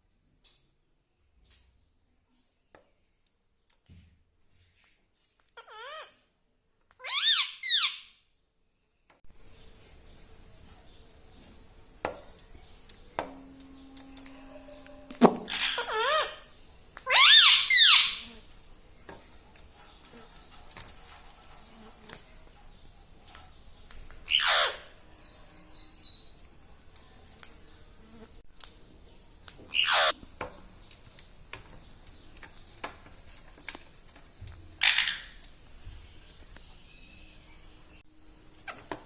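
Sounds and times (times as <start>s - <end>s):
parrot soft chirps: 5.5s - 6.2s, 7.0s - 8.2s, 13.5s - 18.4s, 24.2s - 26.6s, 29.7s - 30.2s
parrot squawking: 5.6s - 6.1s, 7.0s - 8.0s, 15.4s - 16.5s, 17.1s - 18.3s, 24.3s - 24.9s, 29.7s - 30.1s
parrot screeching downward: 7.0s - 8.1s, 15.4s - 16.5s, 17.1s - 18.3s, 24.3s - 24.9s, 29.7s - 30.1s
faint high-pitched tone: 13.2s - 15.2s.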